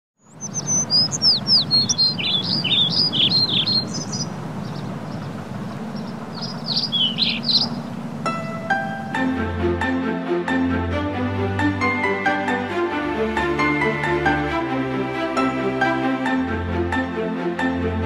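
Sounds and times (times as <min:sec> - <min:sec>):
birds singing and chirping: 0:00.2 - 0:09.4.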